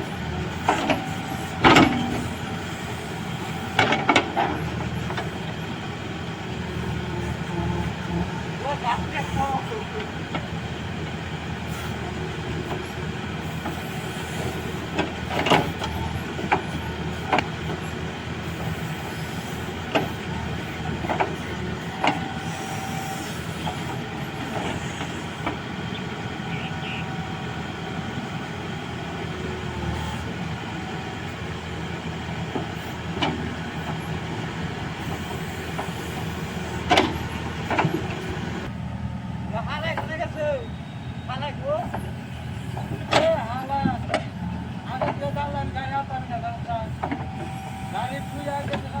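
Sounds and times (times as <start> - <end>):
heavy machinery diesel engine: 0.0 - 49.0
sharp knocks and clanks: 0.7 - 2.4, 36.8 - 38.3, 42.8 - 44.4.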